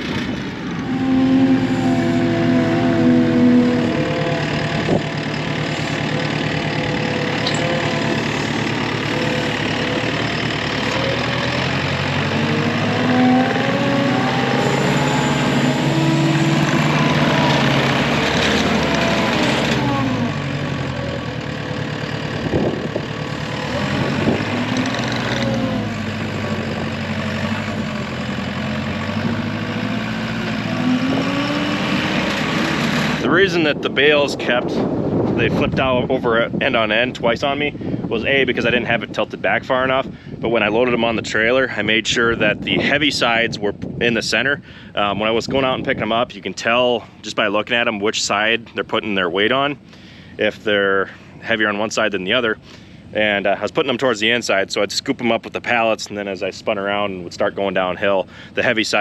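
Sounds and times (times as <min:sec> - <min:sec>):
engine revving: 0:00.0 - 0:33.9.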